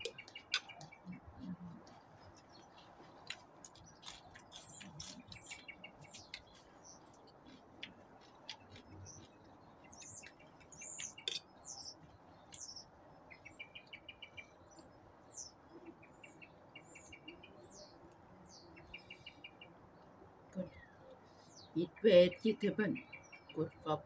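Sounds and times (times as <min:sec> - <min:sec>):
wet chewing clicks: 0:00.0 - 0:12.8
small birds chirping: 0:00.0 - 0:24.0.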